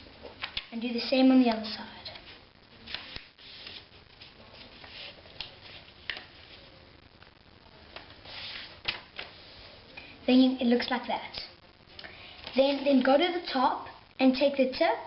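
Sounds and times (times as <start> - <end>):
paper rustling and crinkling: 2.9 - 6.7, 8.0 - 9.6.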